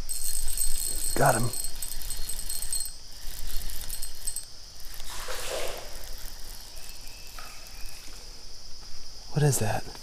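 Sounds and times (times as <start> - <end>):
fishing reel whirring rattle: 0.0 - 8.0
crickets buzzing: 0.0 - 10.0
splashing rustle: 4.9 - 7.6.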